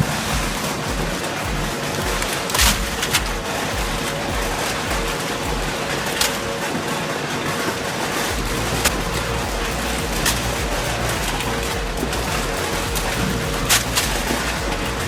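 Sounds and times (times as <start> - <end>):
deep rumble: 8.3 - 15.0.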